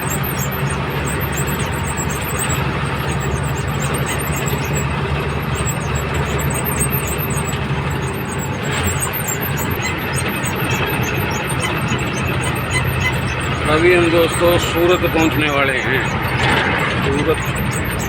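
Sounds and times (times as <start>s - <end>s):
road noise: 0.0s - 18.0s
truck engine droning: 0.0s - 18.0s.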